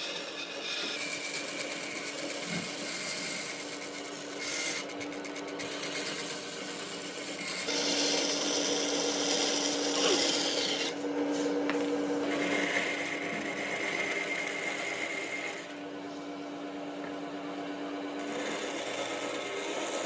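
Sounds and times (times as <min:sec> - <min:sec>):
electric power tool working wood: 0:00.0 - 0:11.0, 0:12.2 - 0:15.7, 0:18.2 - 0:20.0
motor hum: 0:00.0 - 0:16.0.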